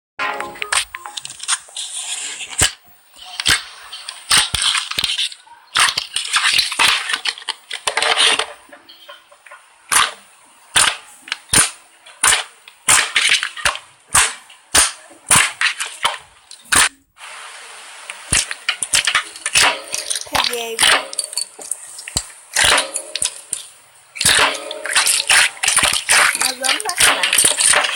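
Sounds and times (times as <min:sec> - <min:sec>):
slime squishing: 0:18.3 - 0:27.9.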